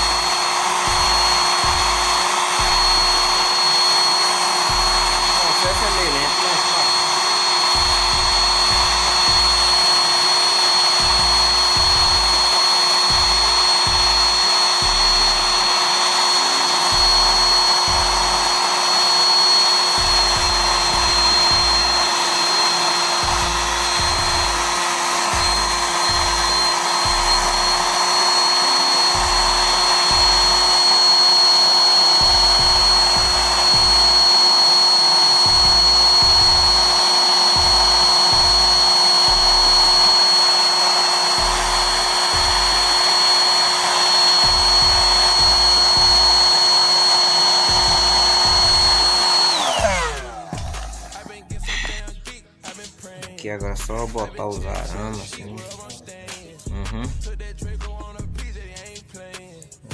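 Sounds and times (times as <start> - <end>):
rap music with deep bass: 0.0 - 3.6, 4.7 - 6.8, 7.7 - 9.9, 11.0 - 15.8, 16.4 - 18.5, 19.8 - 22.2, 23.2 - 24.6, 25.3 - 27.9, 28.7 - 30.8, 32.1 - 34.5, 35.4 - 40.1, 41.3 - 42.9, 44.4 - 46.4, 49.8 - 59.9
small motor whirring and whining: 0.0 - 52.2.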